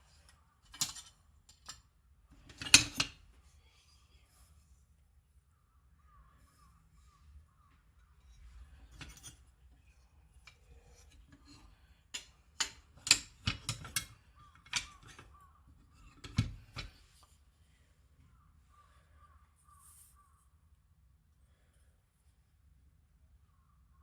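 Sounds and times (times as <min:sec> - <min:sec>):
hard objects clicking and clinking: 0:10.4 - 0:15.4.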